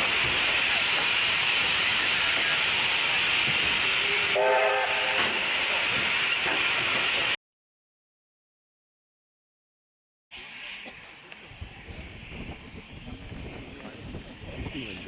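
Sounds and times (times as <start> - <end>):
steam train hissing: 0.0 - 7.4
train whistle toot: 4.0 - 5.4.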